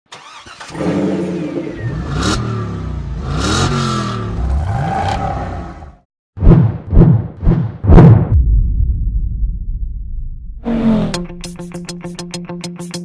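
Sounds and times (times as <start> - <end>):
race car engine revving: 0.6 - 6.0.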